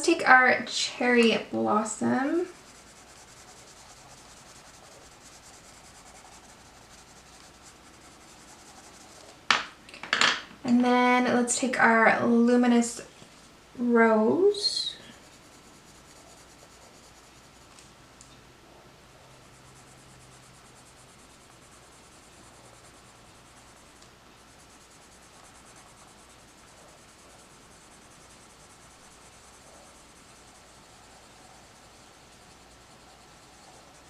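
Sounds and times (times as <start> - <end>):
pencil scratching on paper: 0.3 - 9.4, 14.6 - 17.8, 19.1 - 34.0.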